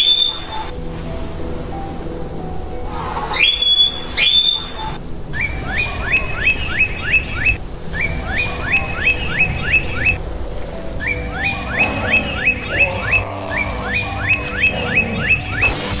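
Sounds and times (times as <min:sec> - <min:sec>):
bird rising whistles: 0:03.4 - 0:10.2.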